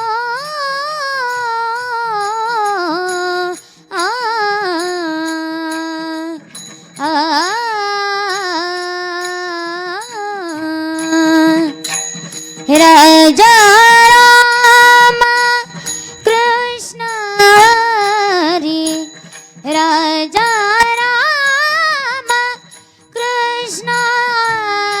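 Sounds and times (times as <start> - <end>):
woman singing: 0.0 - 25.0
singer breathing: 3.6 - 3.9, 15.7 - 16.2, 22.6 - 23.2.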